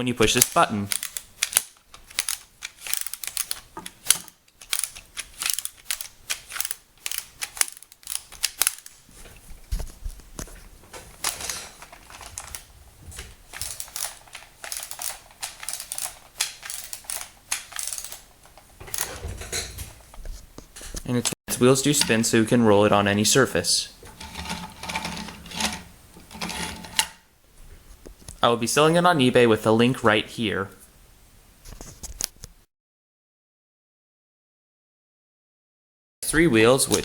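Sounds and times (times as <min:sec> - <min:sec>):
plastic toy clicking and rattling: 0:00.3 - 0:09.0, 0:11.1 - 0:12.7, 0:13.4 - 0:19.9, 0:24.0 - 0:27.2
toy scraping: 0:00.9 - 0:08.9, 0:13.5 - 0:19.2, 0:21.8 - 0:22.4, 0:24.0 - 0:27.2.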